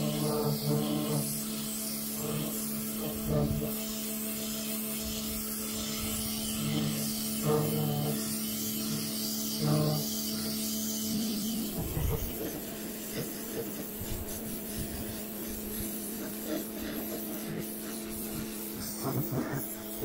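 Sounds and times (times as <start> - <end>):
pressure washer motor hum: 0.0 - 20.0
water jet spraying decking: 8.4 - 20.0.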